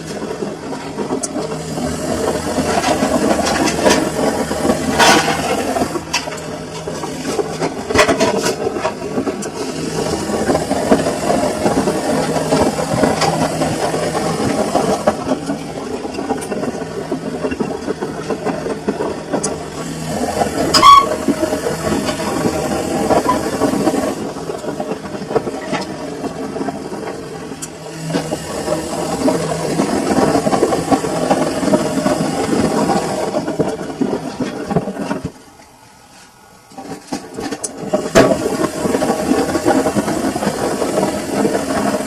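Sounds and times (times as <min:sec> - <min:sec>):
washing machine drum churning: 0:00.0 - 0:35.6, 0:36.8 - 0:42.0.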